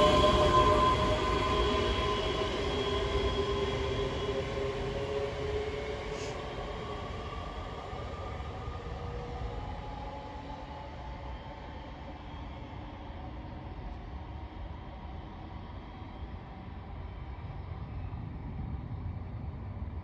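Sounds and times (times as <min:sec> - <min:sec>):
train rumbling: 0:00.0 - 0:15.2.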